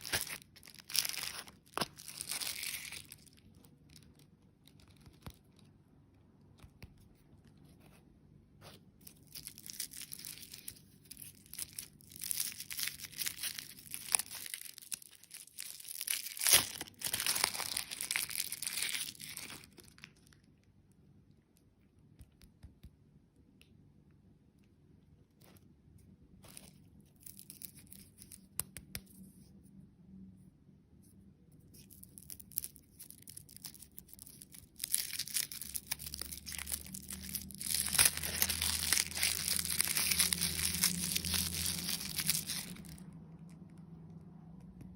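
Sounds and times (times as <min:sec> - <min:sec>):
candy wrapper crinkling: 0:00.0 - 0:06.7, 0:08.6 - 0:20.7, 0:26.3 - 0:29.3, 0:31.6 - 0:44.2
sharp wrapper snap: 0:11.4 - 0:20.1, 0:31.9 - 0:43.0.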